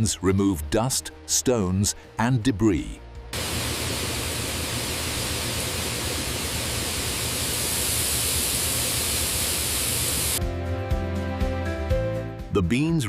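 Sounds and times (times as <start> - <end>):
factory machinery rushing: 3.4 - 10.4
low hum: 3.4 - 10.4.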